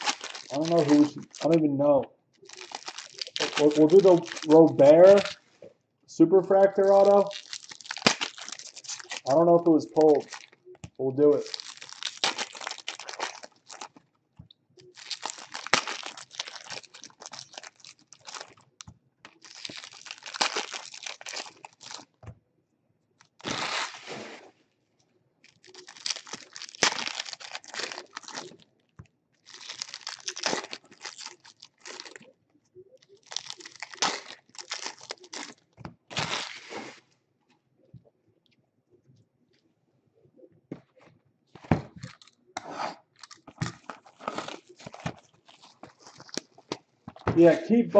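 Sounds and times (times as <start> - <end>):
plastic wrapping torn and crinkled: 0.0 - 1.7, 2.4 - 5.4, 6.5 - 14.0, 14.8 - 22.2, 23.2 - 24.0, 25.4 - 28.6, 29.4 - 32.3, 33.0 - 36.8, 42.0 - 42.4, 43.1 - 47.3.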